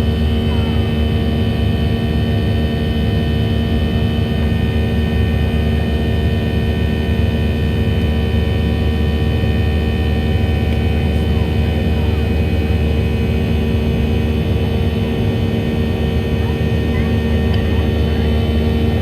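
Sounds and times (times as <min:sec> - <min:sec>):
jet engine rumble in cabin: 0:00.0 - 0:19.0.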